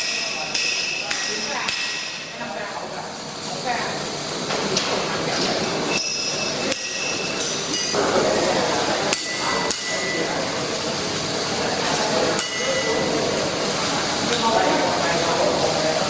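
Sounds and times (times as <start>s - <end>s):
hammer striking steel: 0.0s - 2.4s, 5.9s - 8.2s, 9.1s - 10.4s, 12.3s - 13.1s
workshop background noise: 0.0s - 16.0s.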